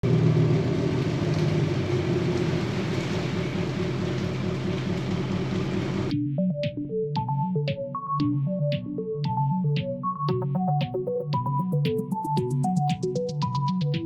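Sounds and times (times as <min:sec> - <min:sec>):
vehicle engine rumbling: 0:00.0 - 0:06.1
electronic synthesizer music: 0:06.1 - 0:14.0.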